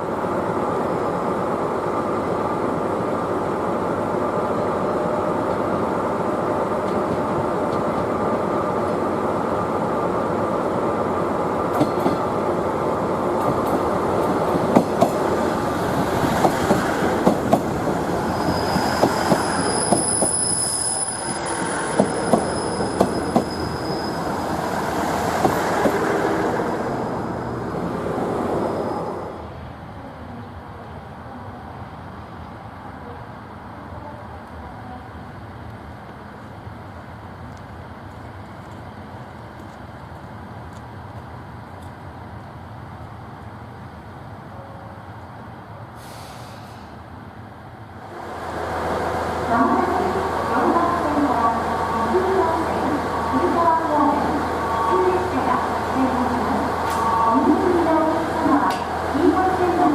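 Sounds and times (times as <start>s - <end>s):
diesel train rumbling on track: 0.0s - 59.9s
high wheel squeal: 18.0s - 24.9s, 27.6s - 29.3s.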